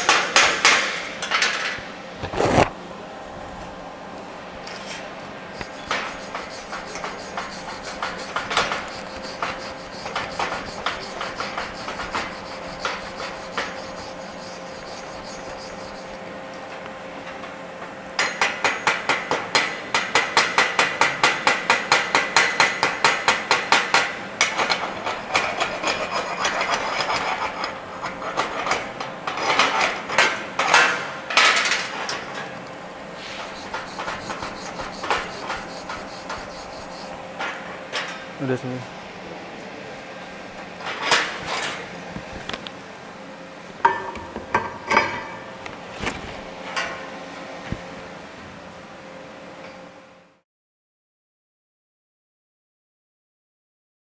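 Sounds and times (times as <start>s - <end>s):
hand tool scraping steel: 5.6s - 16.2s, 24.5s - 29.9s, 33.2s - 37.2s.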